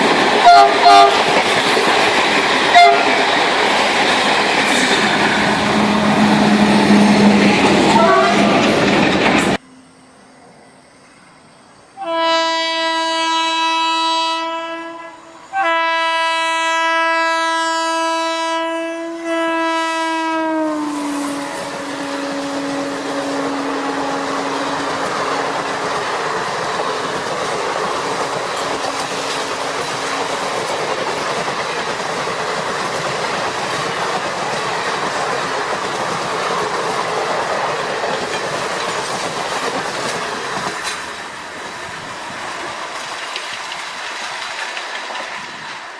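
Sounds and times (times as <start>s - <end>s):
train clattering on rails: 0.0s - 9.6s, 21.0s - 45.9s
train horn blasts: 0.4s - 1.3s, 2.7s - 3.2s, 5.8s - 8.7s, 12.0s - 25.7s.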